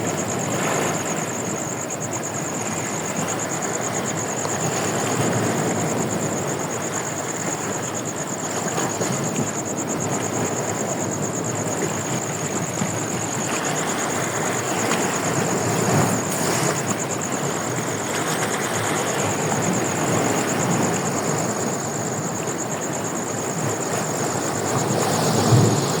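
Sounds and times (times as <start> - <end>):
ocean surf rushing: 0.0 - 26.0
wind on microphone: 0.0 - 26.0.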